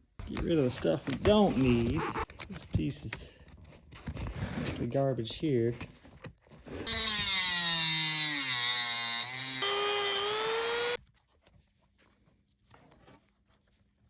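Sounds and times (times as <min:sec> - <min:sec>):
rotary tool cutting: 0:06.8 - 0:11.0.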